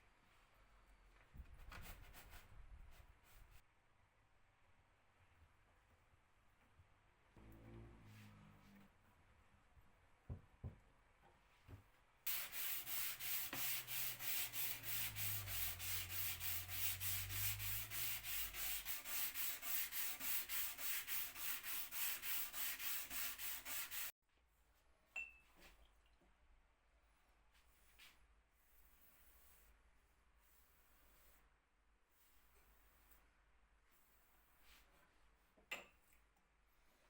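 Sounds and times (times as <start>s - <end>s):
hand sanding wood: 12.3s - 24.1s.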